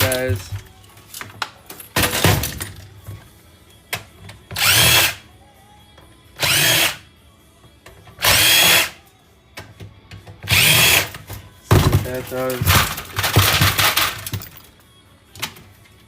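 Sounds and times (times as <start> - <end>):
power drill whining: 4.6 - 5.2, 6.4 - 7.0, 8.2 - 9.0, 10.5 - 11.1.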